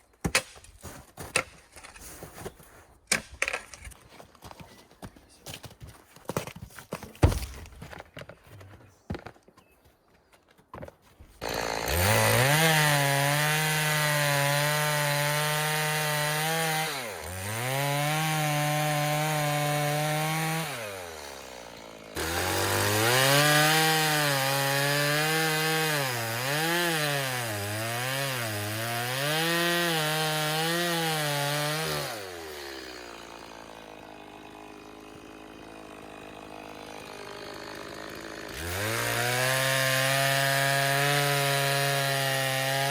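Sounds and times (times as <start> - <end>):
chainsaw cutting wood: 11.4 - 42.9.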